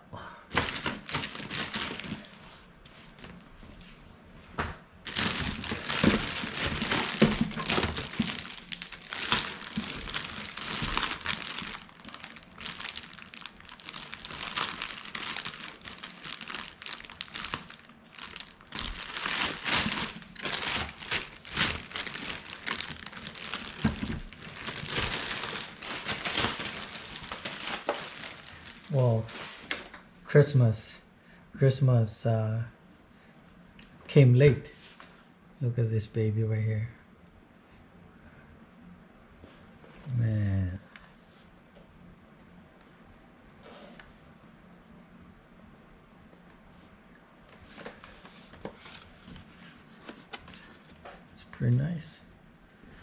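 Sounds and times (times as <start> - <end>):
packaging crinkling and rustling: 0.5 - 3.4, 5.0 - 29.9, 47.5 - 51.1.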